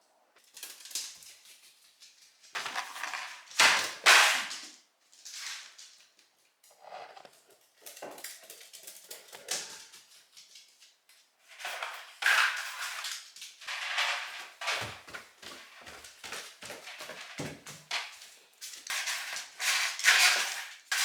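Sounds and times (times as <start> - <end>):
dry kibble clicking and clattering: 7.3 - 15.2, 15.8 - 21.0.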